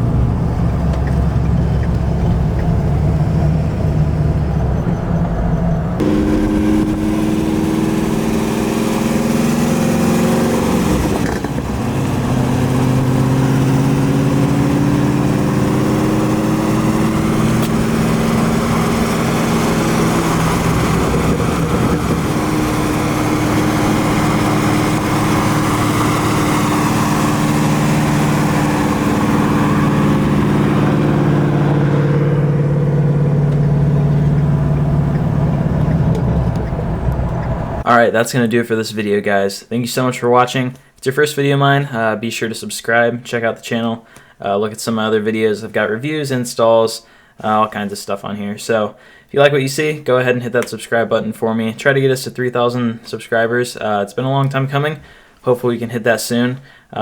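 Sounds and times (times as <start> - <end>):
car engine running: 0.0 - 37.9
road noise: 0.0 - 38.0.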